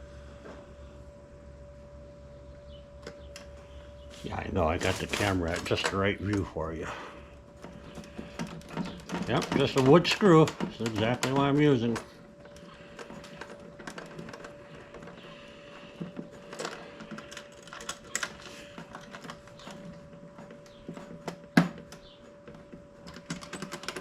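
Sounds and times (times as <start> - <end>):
faint steady hum: 0.0 - 24.0
hand tools clicking and tapping: 4.6 - 6.6, 7.5 - 24.0.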